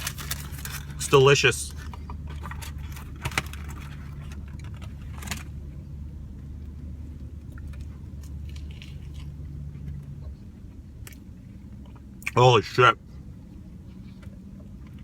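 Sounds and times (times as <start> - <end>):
crinkles and clicks: 0.0 - 5.5
steady low hum: 0.0 - 15.0
chewing food: 7.2 - 12.4.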